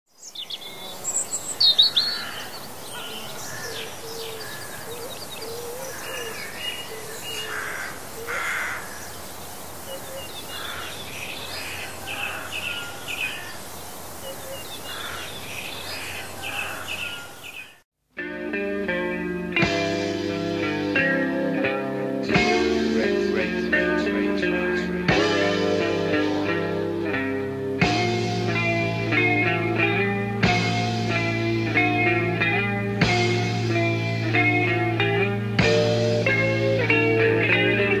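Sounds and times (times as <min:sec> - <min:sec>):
wild birds singing and calling: 0:00.1 - 0:17.8
steady outdoor hiss: 0:00.1 - 0:38.0
rock music: 0:18.2 - 0:38.0.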